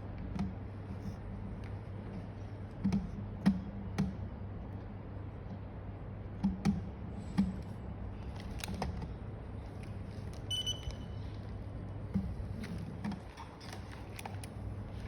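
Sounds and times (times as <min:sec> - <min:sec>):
steady low hum: 0:00.0 - 0:15.0
knocks and clicks of handling: 0:02.7 - 0:04.2, 0:11.9 - 0:15.0
short electronic beep: 0:10.5 - 0:11.2.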